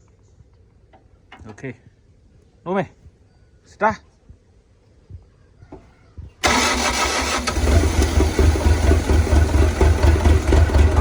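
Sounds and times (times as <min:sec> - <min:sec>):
diesel engine starting and idling: 0:06.4 - 0:11.0.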